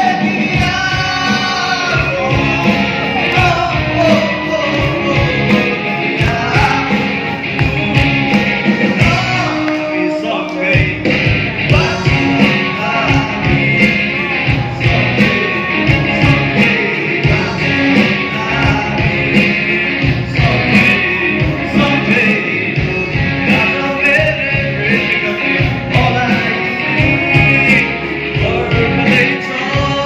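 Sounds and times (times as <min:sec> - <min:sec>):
man singing rock song: 0:00.0 - 0:30.0
rock band with drum beat: 0:00.0 - 0:30.0.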